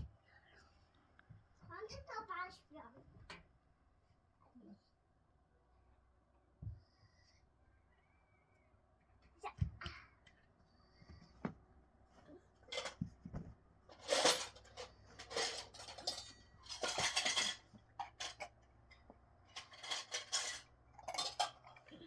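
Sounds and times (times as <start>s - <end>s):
dishes and utensils clattering: 12.6s - 13.1s, 13.9s - 22.0s.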